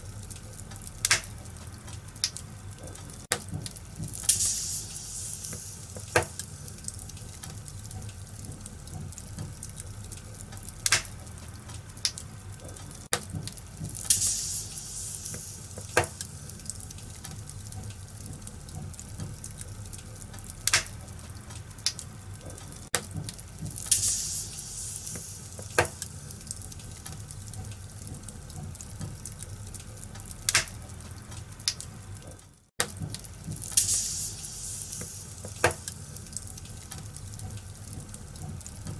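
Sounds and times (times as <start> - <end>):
burning wood popping: 0.0 - 38.9
fireplace fire crackling: 0.0 - 38.9
short bursts of hissing: 4.3 - 6.8, 14.1 - 16.5, 23.9 - 26.3, 33.8 - 35.8.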